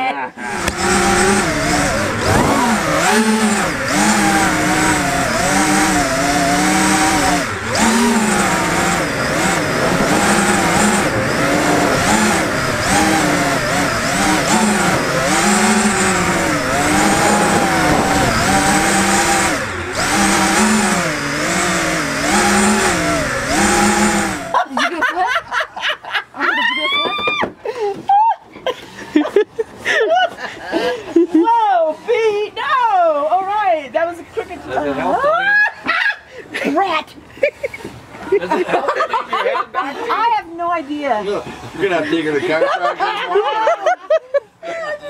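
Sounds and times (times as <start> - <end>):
quadcopter motors whining: 0.0 - 25.7, 26.4 - 36.3.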